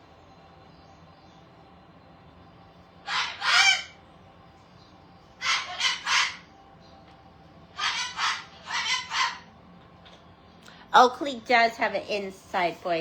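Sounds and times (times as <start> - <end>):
parrot screeching: 3.0 - 4.0, 5.4 - 6.5, 7.7 - 9.5.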